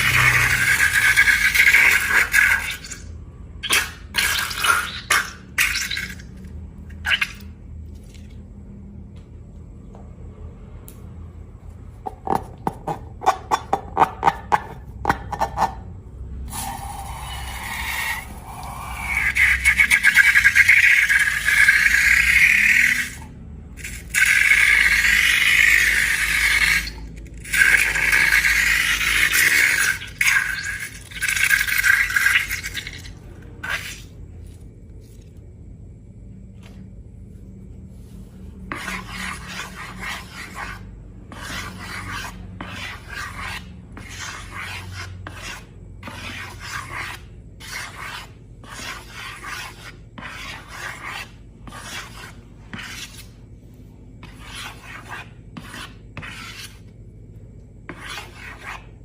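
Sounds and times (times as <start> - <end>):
slime scraping: 0.0 - 8.3, 23.8 - 35.4, 38.0 - 53.4, 54.2 - 56.9.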